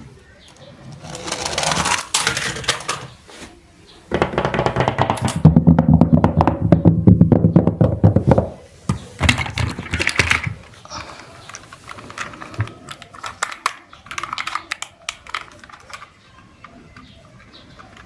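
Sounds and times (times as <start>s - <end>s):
clatter of small hard objects: 1.0s - 3.2s, 8.9s - 18.0s.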